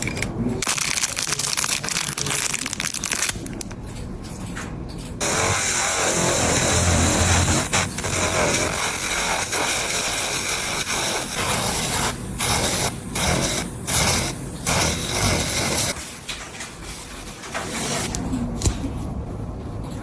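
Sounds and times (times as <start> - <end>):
nail drill sanding a nail: 5.2 - 16.0.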